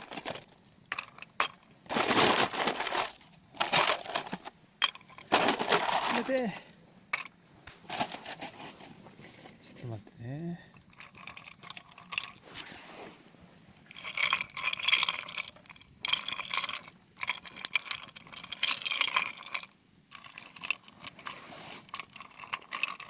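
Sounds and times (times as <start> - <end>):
metal gear clinking and scraping: 13.9 - 23.0.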